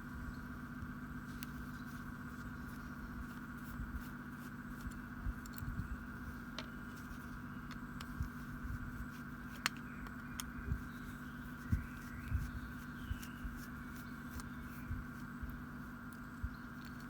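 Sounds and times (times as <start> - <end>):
steady background hum: 0.0 - 17.0
soft knocks of small parts: 9.5 - 10.8.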